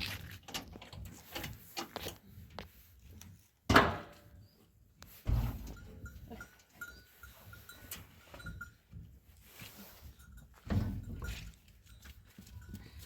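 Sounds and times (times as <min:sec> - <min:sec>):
small bell clinking: 0:05.7 - 0:08.9.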